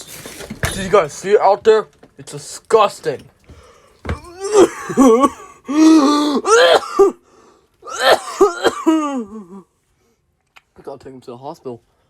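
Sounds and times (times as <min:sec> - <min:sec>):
person making breathy groans: 0:04.2 - 0:06.8.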